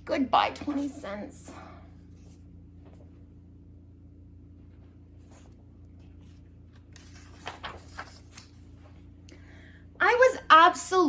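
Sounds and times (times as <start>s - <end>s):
low steady hum: 0.0s - 11.0s
paper page rustling: 4.7s - 9.1s.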